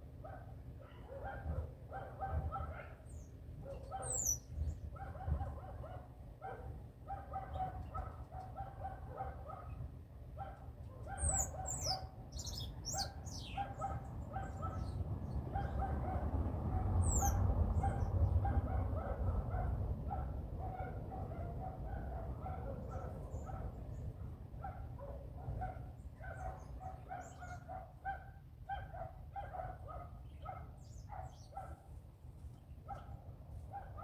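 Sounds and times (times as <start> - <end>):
small birds chirping: 3.1 - 4.9, 11.1 - 16.0, 17.0 - 18.4, 26.1 - 27.7, 30.2 - 33.1.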